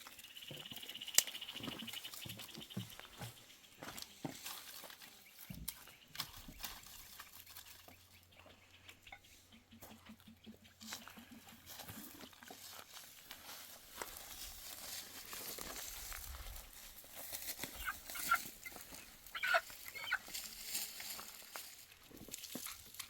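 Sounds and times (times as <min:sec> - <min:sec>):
wheat stalks rustling and crunching: 0:00.0 - 0:08.5, 0:10.8 - 0:23.0
animal calls: 0:17.7 - 0:20.3.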